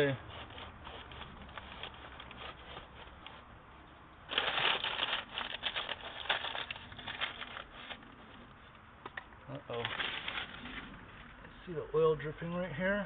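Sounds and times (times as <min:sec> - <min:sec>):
newspaper crinkling and rustling: 0:00.0 - 0:03.5, 0:04.3 - 0:08.5, 0:09.5 - 0:11.0.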